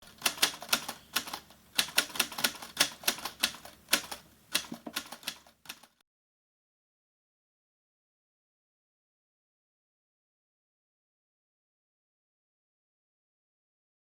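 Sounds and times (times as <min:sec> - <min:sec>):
sharp irregular clicks: 0:00.1 - 0:06.0.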